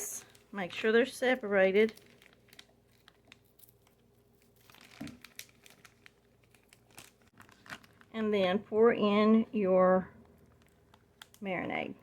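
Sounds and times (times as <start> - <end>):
plastic bag rustle: 0.0 - 8.2
small crackles: 0.0 - 8.3, 10.1 - 12.0
plastic bag crinkling: 0.0 - 8.4, 10.2 - 11.5.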